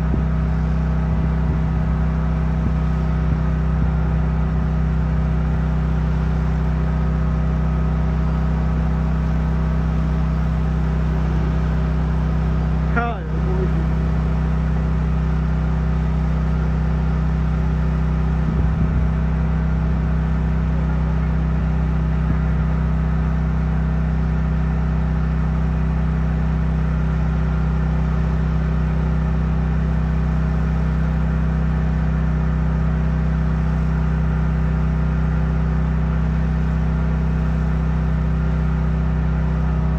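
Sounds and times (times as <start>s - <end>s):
drone rotors humming: 8.3s - 17.1s.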